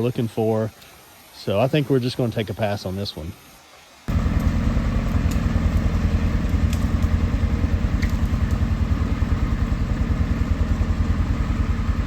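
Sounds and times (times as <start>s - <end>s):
vehicle engine running: 4.1s - 12.0s
light clattering ticks: 4.2s - 7.2s, 7.9s - 8.8s.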